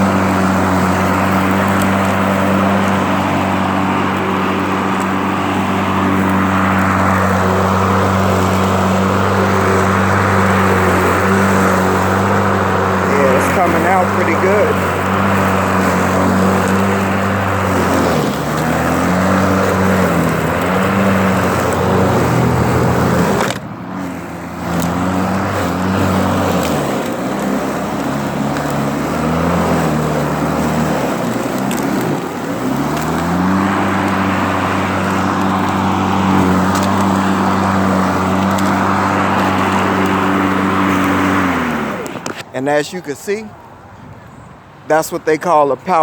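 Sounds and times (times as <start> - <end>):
electric motor whining: 0.0 - 42.5
grass being raked up: 0.0 - 42.5.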